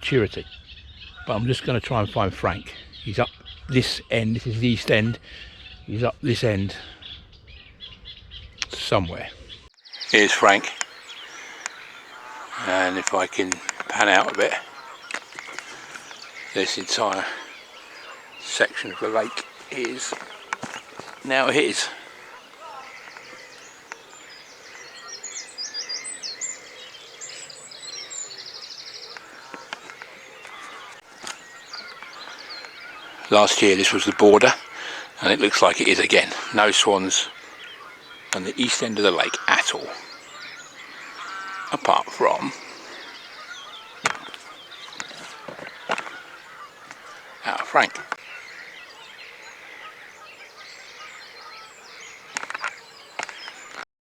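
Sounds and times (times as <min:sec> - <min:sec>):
songbirds singing: 0:00.0 - 0:53.9
bird trill: 0:06.8 - 0:53.8
sharp clicks: 0:10.4 - 0:17.2.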